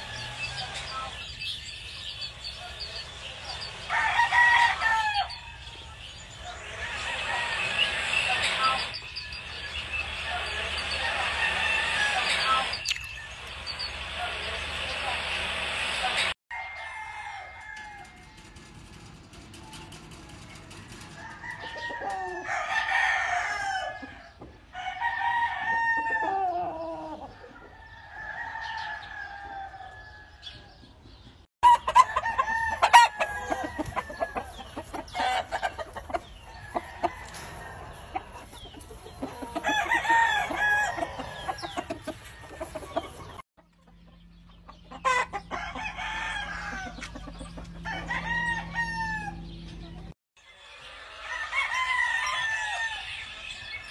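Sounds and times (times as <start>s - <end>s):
chicken clucking: 0.0s - 13.0s, 31.2s - 51.4s
roosters crowing: 0.0s - 43.4s, 44.9s - 53.9s.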